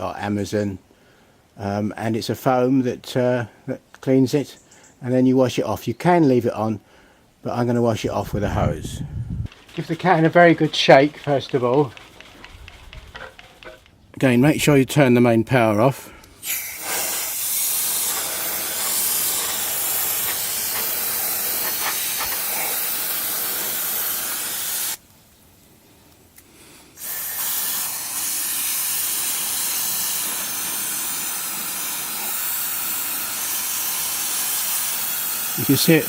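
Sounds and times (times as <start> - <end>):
aerosol can spraying with hiss: 9.5 - 13.8, 16.4 - 25.2, 26.6 - 36.0.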